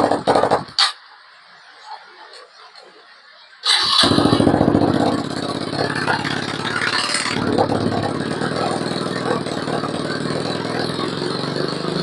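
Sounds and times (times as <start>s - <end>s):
motorcycle engine starting and idling: 3.6s - 12.0s.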